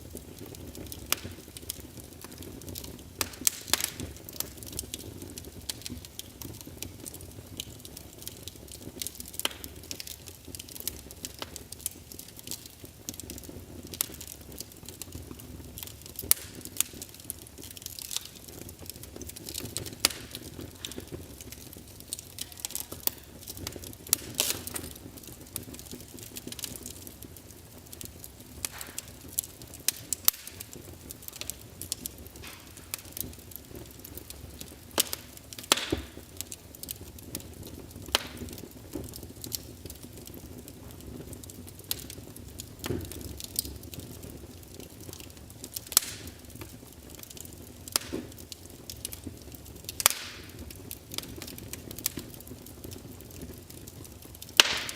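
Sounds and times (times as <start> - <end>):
fireplace crackling: 0.0 - 54.9.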